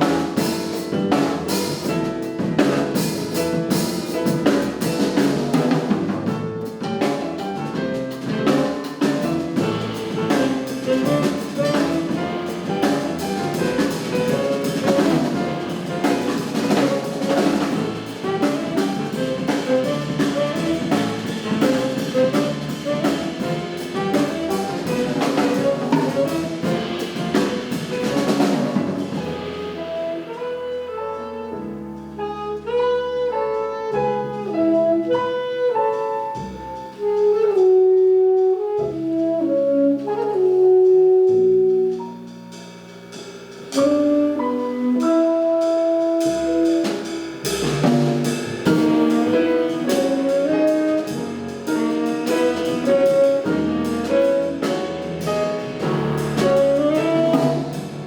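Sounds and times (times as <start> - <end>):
double bass: 0.0 - 58.0
drums and cymbals: 0.0 - 58.0
piano: 0.0 - 58.0
saxophone: 8.6 - 27.4, 29.3 - 42.4, 43.7 - 47.4, 48.7 - 58.0.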